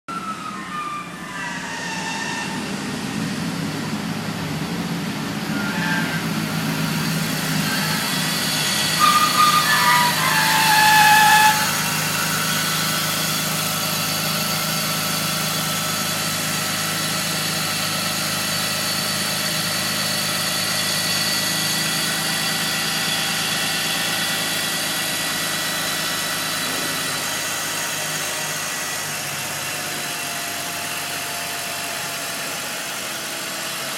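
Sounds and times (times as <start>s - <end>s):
high-pitched screech: 0.1s - 15.9s
car engine humming: 0.1s - 33.3s.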